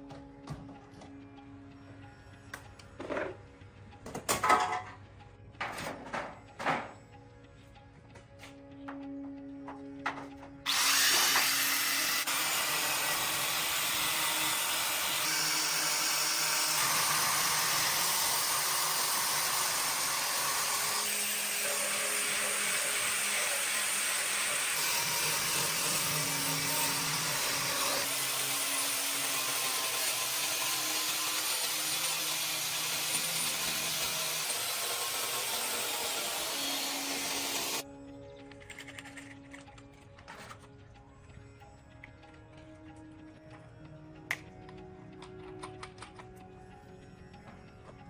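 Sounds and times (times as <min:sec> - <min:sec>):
power tool running: 0:10.6 - 0:37.8.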